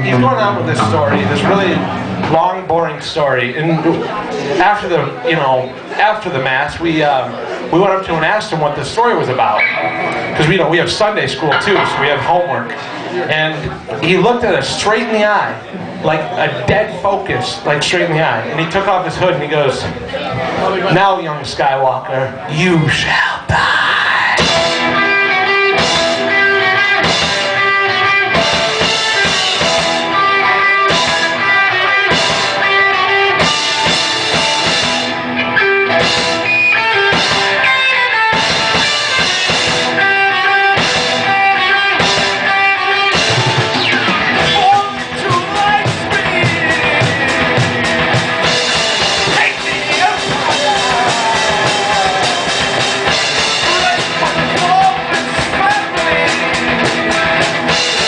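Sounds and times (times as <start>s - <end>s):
drum kit: 0.0s - 3.2s, 9.6s - 13.0s, 24.3s - 58.0s
distorted electric guitars: 0.0s - 5.8s, 7.6s - 14.1s, 24.3s - 58.0s.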